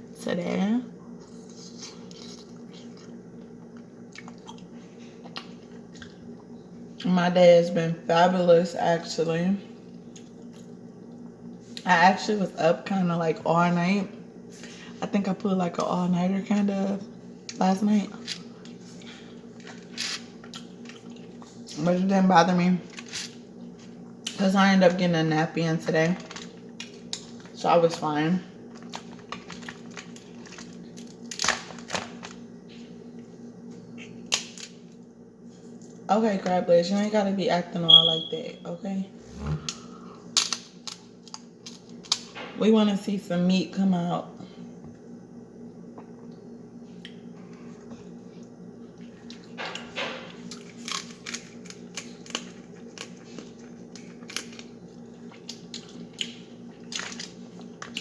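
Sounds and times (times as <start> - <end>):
faint steady hum: 0.0 - 58.0
crab shells cracking: 28.7 - 32.4, 39.7 - 42.4, 50.5 - 58.0.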